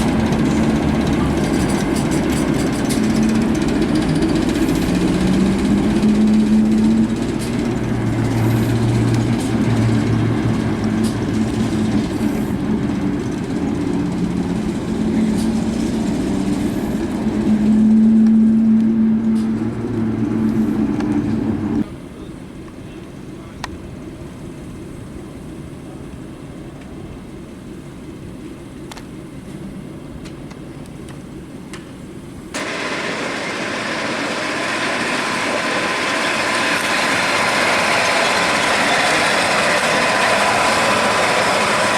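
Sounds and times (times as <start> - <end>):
rushing noise: 0.0 - 21.8, 32.6 - 41.9
locomotive engine humming: 0.0 - 41.9
steady high tone: 16.4 - 21.8.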